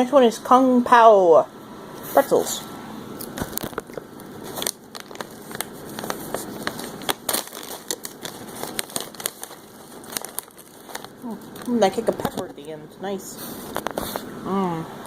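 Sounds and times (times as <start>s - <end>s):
crunching pretzels: 3.2s - 12.6s
snack bag crinkling: 3.2s - 12.7s, 13.7s - 14.2s.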